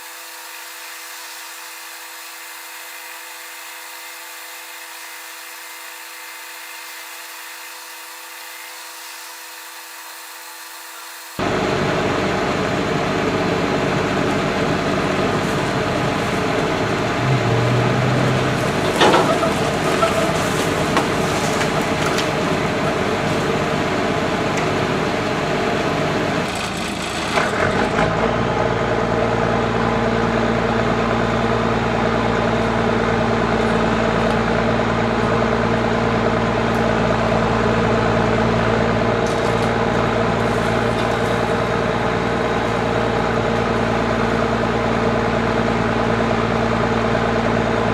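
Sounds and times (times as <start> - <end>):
deep engine hum: 11.4 - 47.9
engine idling: 11.4 - 47.9.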